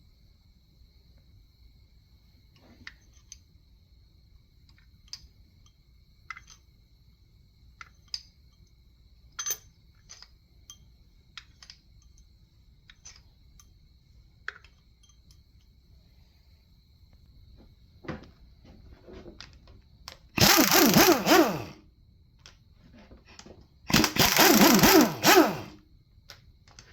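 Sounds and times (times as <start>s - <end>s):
tools and engine parts clinking: 2.6s - 3.5s, 4.7s - 6.7s, 7.8s - 13.8s, 14.4s - 15.7s, 18.1s - 21.8s, 22.4s - 25.8s.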